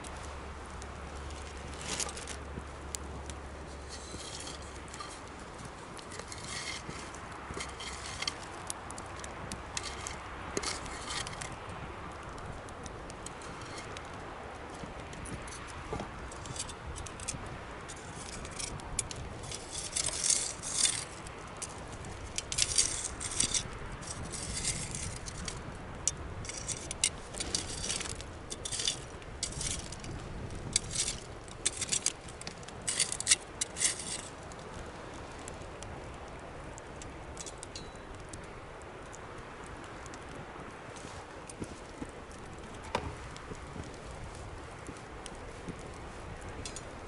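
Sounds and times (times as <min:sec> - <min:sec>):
low background noise: 0:00.0 - 0:47.0
small hard objects clinking: 0:26.4 - 0:30.1, 0:30.7 - 0:34.3.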